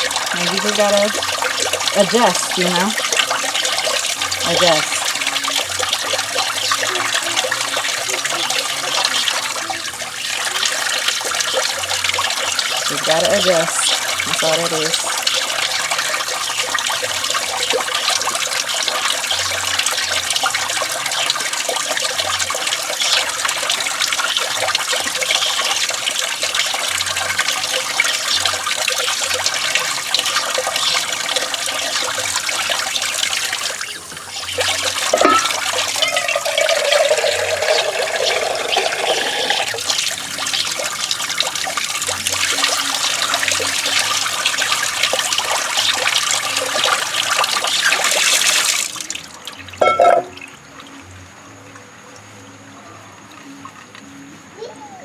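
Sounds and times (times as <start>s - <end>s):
water running from a tap: 0.0s - 51.2s.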